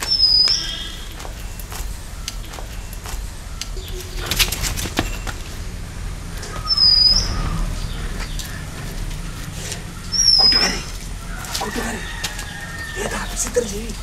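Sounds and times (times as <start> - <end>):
high thin bird whistle: 0.0 - 1.2, 6.5 - 7.6.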